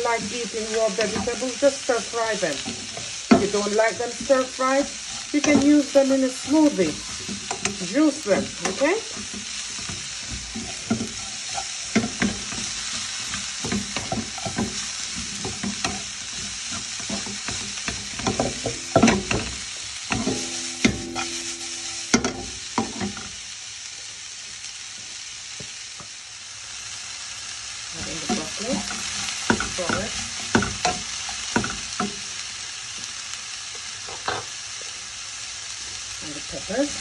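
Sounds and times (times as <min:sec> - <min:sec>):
vegetables sizzling in hot oil: 0:00.0 - 0:37.0
utensil knocking and scraping pan: 0:00.1 - 0:23.3, 0:28.0 - 0:32.2.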